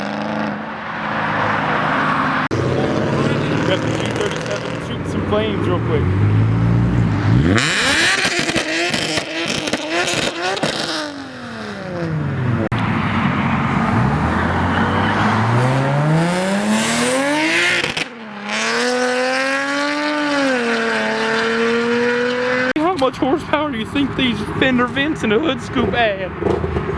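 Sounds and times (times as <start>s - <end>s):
car engine revving in blips: 0.0s - 22.8s
engine revving up slowly: 2.4s - 22.7s
exhaust crackling and popping: 2.5s - 18.9s, 22.7s - 26.9s.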